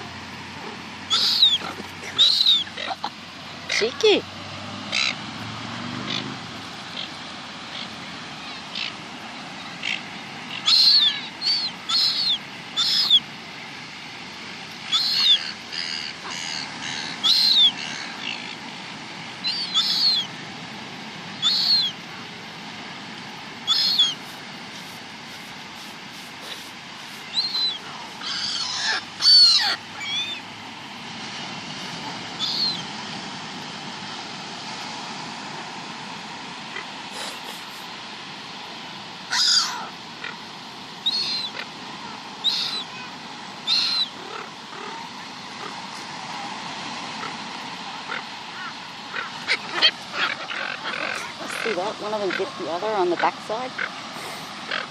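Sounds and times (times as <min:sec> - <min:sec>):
gulls squealing: 0:00.7 - 0:04.2, 0:09.8 - 0:13.3, 0:14.8 - 0:18.6, 0:19.3 - 0:20.3, 0:21.4 - 0:22.0, 0:23.6 - 0:24.4, 0:25.8 - 0:30.4, 0:32.3 - 0:32.9, 0:39.3 - 0:40.4, 0:41.0 - 0:46.0, 0:47.2 - 0:54.9.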